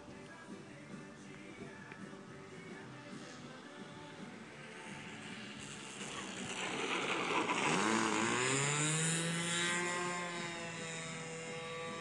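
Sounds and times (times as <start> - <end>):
model plane engine passing by: 4.4 - 12.0.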